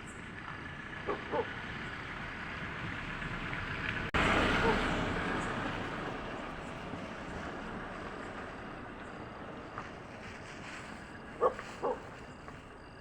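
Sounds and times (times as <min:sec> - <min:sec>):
dog barking: 0:01.0 - 0:01.5, 0:04.6 - 0:04.8, 0:11.4 - 0:12.2.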